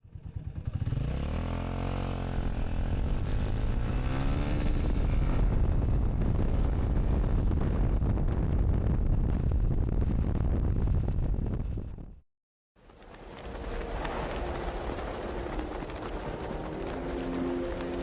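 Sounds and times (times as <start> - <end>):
motorcycle engine accelerating: 0.0 - 12.2.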